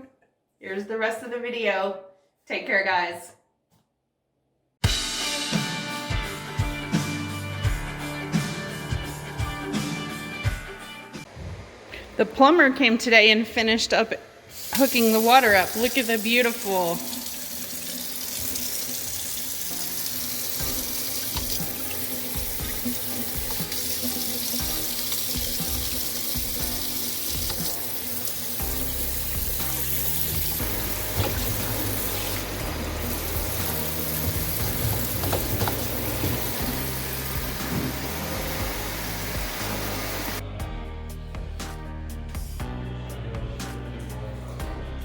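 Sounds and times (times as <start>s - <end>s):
background music with bass line: 4.8s - 11.3s, 28.6s - 45.0s
water running from tap into sink: 14.5s - 40.4s.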